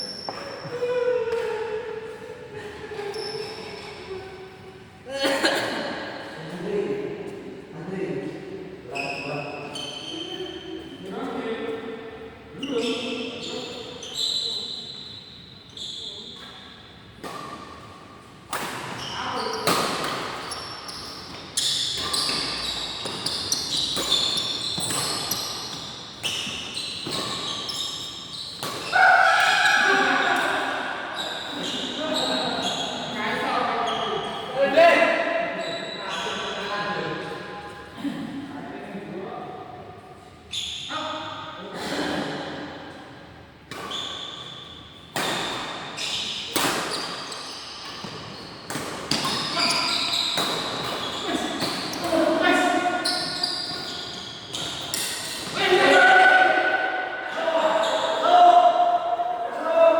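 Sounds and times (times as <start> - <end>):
racket hitting shuttlecock: 28.6 - 29.8, 46.5 - 49.6, 50.3 - 52.2.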